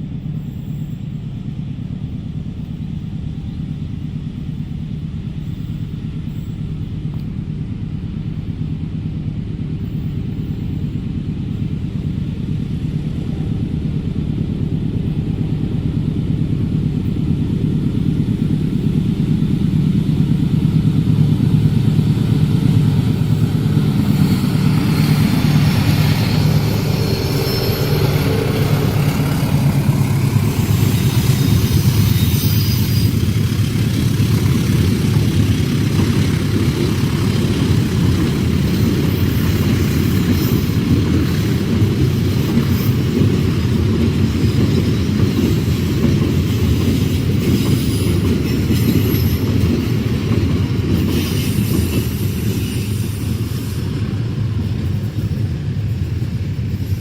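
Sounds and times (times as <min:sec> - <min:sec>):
locomotive engine drone: 0:00.0 - 0:57.0
train coaches rumbling: 0:00.0 - 0:57.0
wheels squealing on track: 0:23.4 - 0:34.4.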